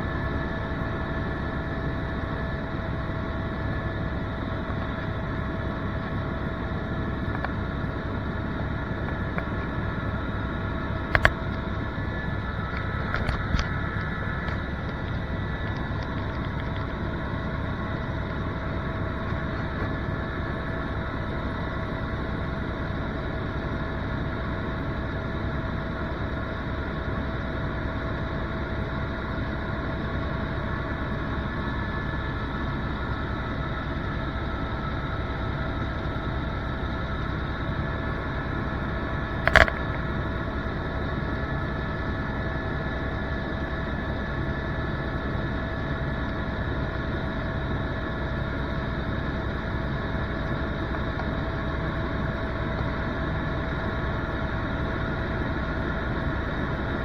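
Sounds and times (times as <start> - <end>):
helicopter engine and rotor: 0.0 - 57.0
sharp click: 11.1 - 11.6, 39.5 - 40.0.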